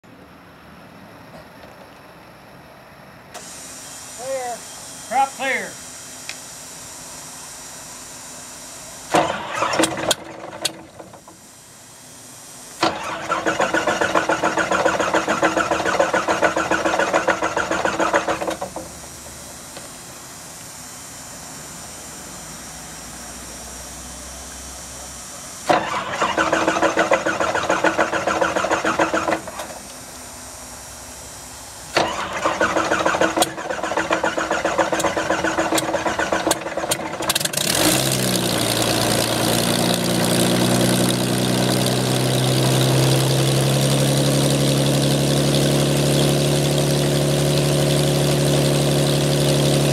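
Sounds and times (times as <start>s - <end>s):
electric starter cranking engine: 9.1s - 11.4s, 12.8s - 19.9s, 25.6s - 29.9s, 31.9s - 49.9s.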